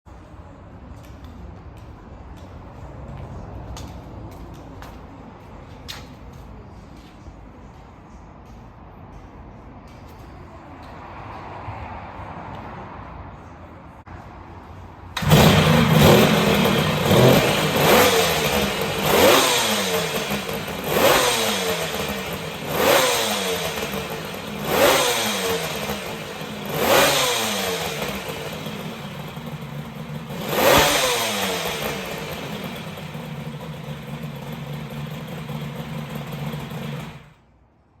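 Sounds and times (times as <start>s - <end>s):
motorcycle engine starting and revving: 15.1s - 37.5s.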